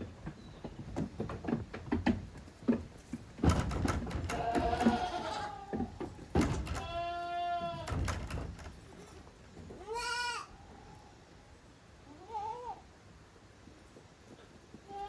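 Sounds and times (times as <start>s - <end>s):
loud knocks and thumps: 0.7s - 7.0s, 7.8s - 8.8s
young goats bleating: 4.3s - 6.0s, 6.8s - 7.9s, 8.9s - 10.7s, 12.1s - 12.9s.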